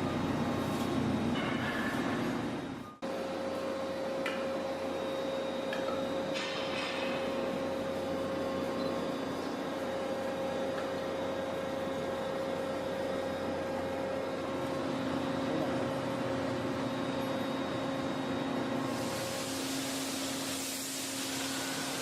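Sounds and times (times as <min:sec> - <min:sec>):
hiss: 0:18.9 - 0:22.0.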